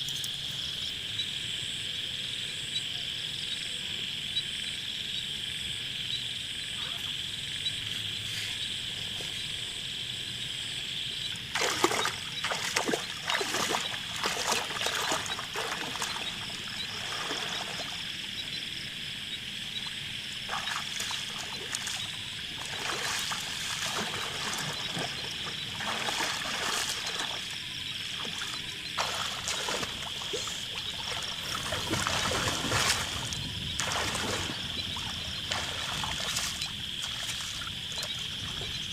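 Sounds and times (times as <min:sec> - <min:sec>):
insects chirring: 0:00.0 - 0:38.9
water splashing and trickling: 0:11.3 - 0:18.4, 0:19.8 - 0:38.9.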